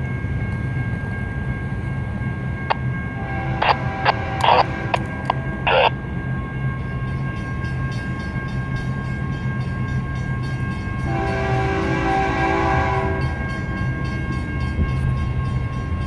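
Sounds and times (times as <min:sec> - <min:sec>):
diesel locomotives rumbling: 0:00.0 - 0:16.0
locomotive whine: 0:00.0 - 0:16.0
train air horn: 0:03.2 - 0:05.9, 0:11.1 - 0:13.4.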